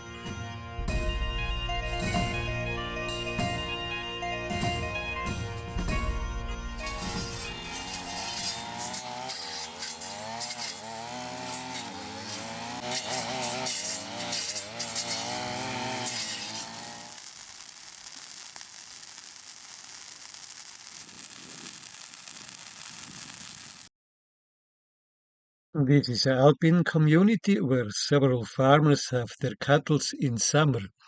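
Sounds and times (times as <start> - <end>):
small engine running: 5.8 - 23.9.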